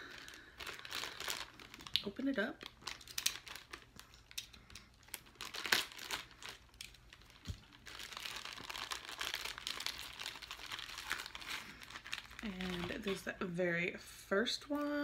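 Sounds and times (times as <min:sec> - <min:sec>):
snack bag crinkling: 0:00.0 - 0:13.3.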